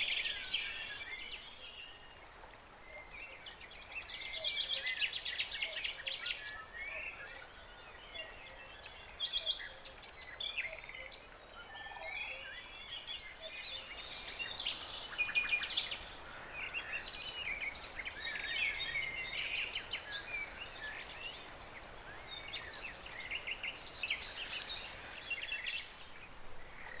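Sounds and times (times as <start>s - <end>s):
faint background hiss: 0.0s - 27.0s
songbirds singing and calling: 2.9s - 27.0s.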